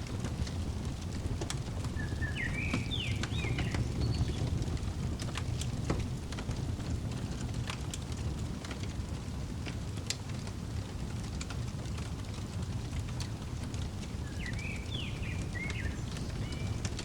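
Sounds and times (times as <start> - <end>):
wood fire crackling and popping: 0.0 - 17.0
quick bird chirps: 2.0 - 4.5.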